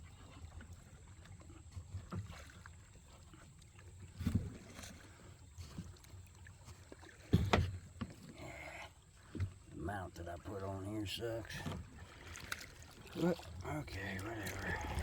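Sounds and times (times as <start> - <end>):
paddle splashing in water: 0.0 - 15.0
paddle knocking against kayak: 6.7 - 8.3.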